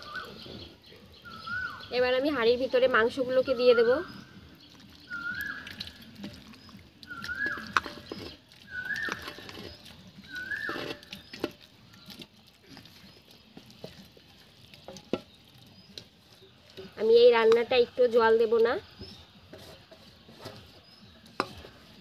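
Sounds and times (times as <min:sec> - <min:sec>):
bird whistling: 0:01.2 - 0:01.9, 0:05.0 - 0:06.0, 0:07.0 - 0:11.3
meat scooped from steel bowl: 0:04.7 - 0:17.0.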